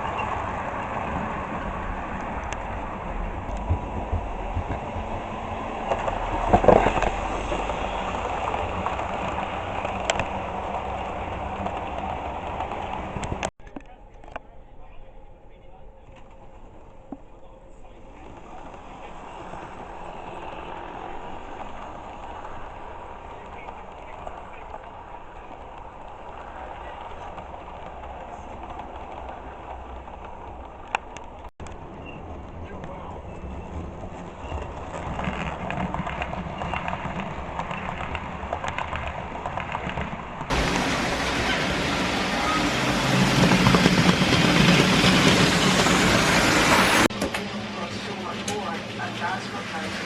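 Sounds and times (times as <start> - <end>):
model train rumbling on track: 0.0 - 14.0, 14.8 - 50.0
model train rattle: 17.8 - 50.0.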